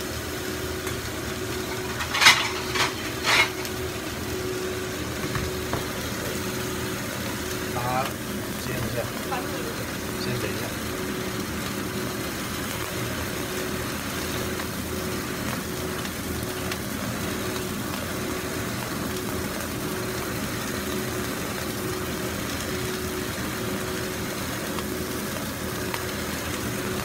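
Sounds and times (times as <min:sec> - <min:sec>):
steady low hum: 0:00.0 - 0:15.5
chicken sizzling in a pan: 0:00.0 - 0:27.0.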